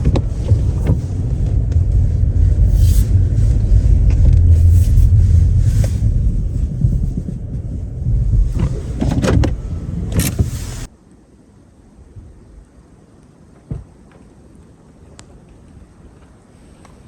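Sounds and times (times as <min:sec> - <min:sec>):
pickup truck engine rumble: 0:00.0 - 0:10.9.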